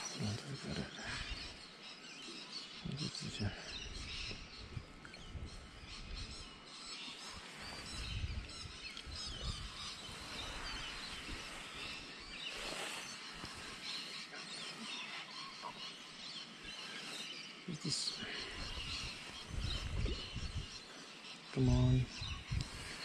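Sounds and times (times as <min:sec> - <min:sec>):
birds chirping: 0:00.0 - 0:23.0
wind rumble on microphone: 0:02.8 - 0:13.8, 0:18.4 - 0:20.8, 0:21.6 - 0:23.0.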